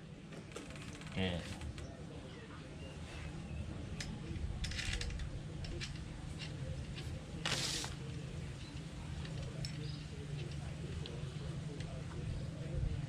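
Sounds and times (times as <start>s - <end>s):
steady low hum: 1.6s - 13.0s
short scraping rustle: 7.4s - 8.0s.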